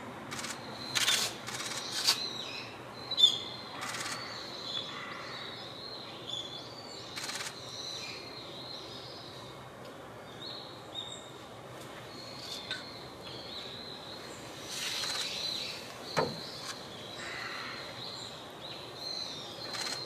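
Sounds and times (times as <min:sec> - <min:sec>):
magpies calling: 0:00.3 - 0:05.8, 0:07.0 - 0:08.3, 0:12.2 - 0:18.5, 0:19.1 - 0:20.0.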